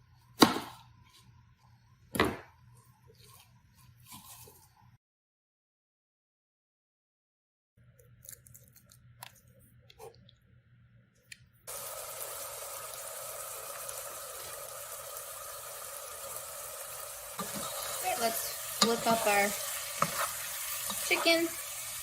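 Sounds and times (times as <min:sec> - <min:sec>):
chicken sizzling in oil: 0:11.7 - 0:22.0.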